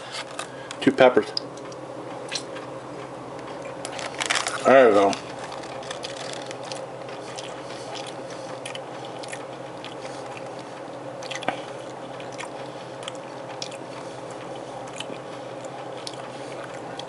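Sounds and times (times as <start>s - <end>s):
person chewing: 3.4s - 17.0s.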